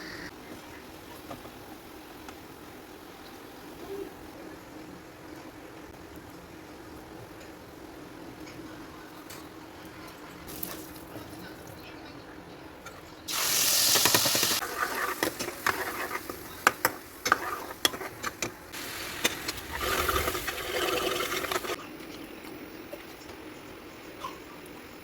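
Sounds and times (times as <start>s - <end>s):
loud hissing noise: 18.7s - 21.8s.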